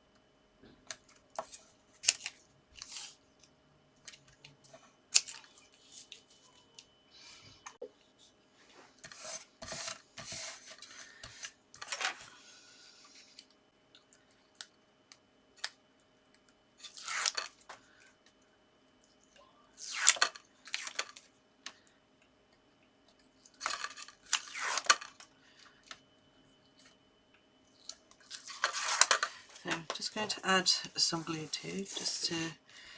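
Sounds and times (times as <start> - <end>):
tape tearing and peeling: 16.8 - 17.5, 19.8 - 21.1, 24.2 - 25.1
paper rubbing and crinkling: 31.1 - 32.4.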